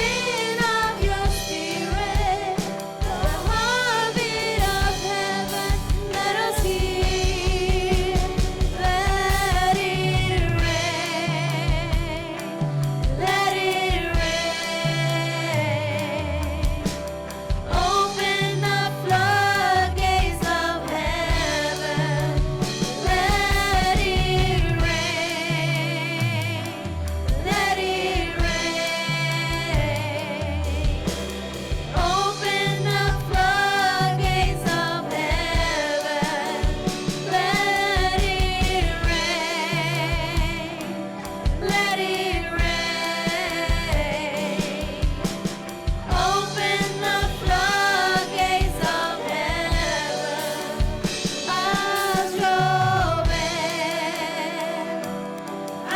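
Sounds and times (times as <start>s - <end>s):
singers with vibrato: 0.0s - 55.9s
steady drum beats: 0.0s - 55.9s
bass line: 14.0s - 35.9s.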